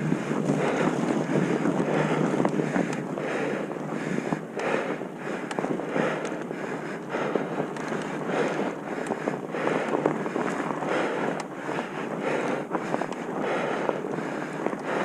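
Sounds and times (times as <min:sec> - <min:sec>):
wind buffeting microphone: 0:00.0 - 0:15.0
small clicks and rattles: 0:07.5 - 0:11.6.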